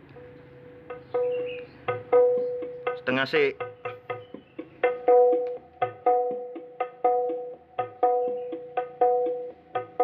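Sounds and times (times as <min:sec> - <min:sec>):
percussive music through speaker: 0:00.9 - 0:10.0.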